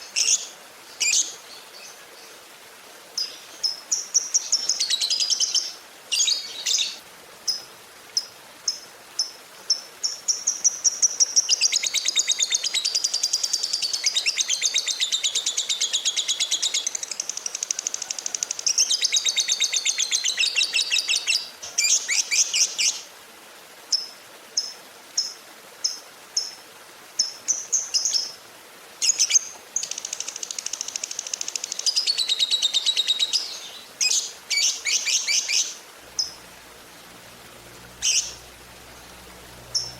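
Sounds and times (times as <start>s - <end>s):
bird chirping and trilling: 29.0s - 36.4s, 38.0s - 39.9s.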